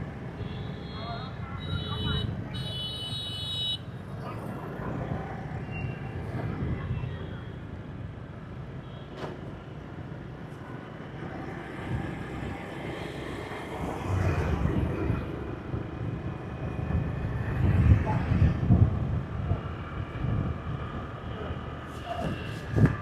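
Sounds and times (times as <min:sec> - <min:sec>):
tyre and wind noise: 0:14.5 - 0:21.2, 0:21.8 - 0:23.0.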